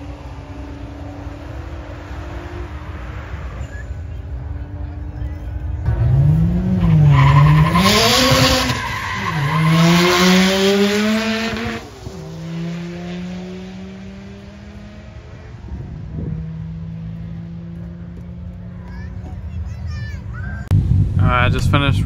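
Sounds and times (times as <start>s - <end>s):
car engine revving: 5.6s - 19.3s.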